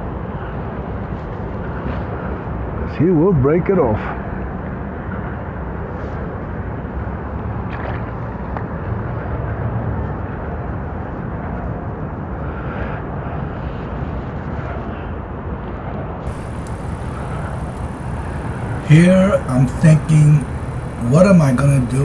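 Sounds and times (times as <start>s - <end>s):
outdoor rumble: 16.3s - 22.0s.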